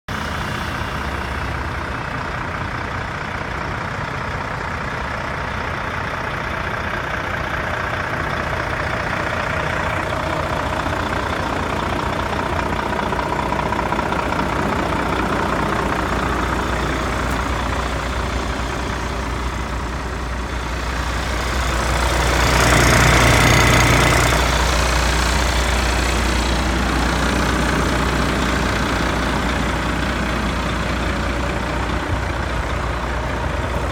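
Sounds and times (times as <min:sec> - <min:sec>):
diesel truck engine idling: 0:00.1 - 0:33.9.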